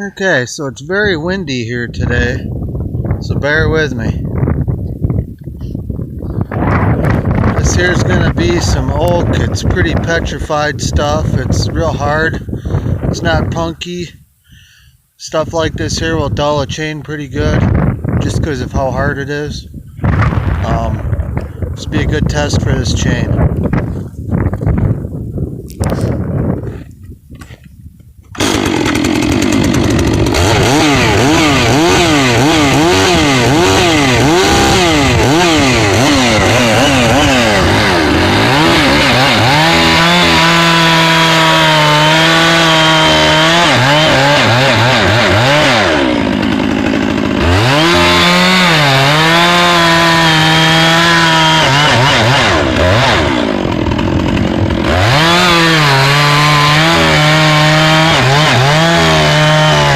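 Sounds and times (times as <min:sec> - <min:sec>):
chainsaw cutting wood: 0:06.6 - 0:10.2, 0:25.7 - 0:59.9.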